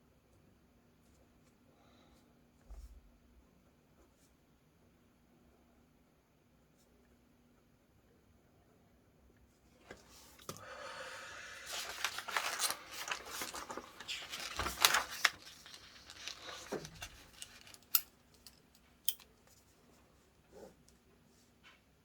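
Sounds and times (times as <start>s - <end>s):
paper rustling and crinkling: 11.5s - 18.0s.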